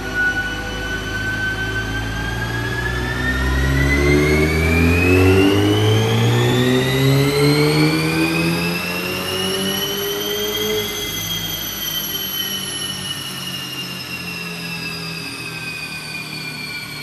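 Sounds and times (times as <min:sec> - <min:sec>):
car engine accelerating: 0:00.0 - 0:13.3
high whine: 0:00.0 - 0:17.0.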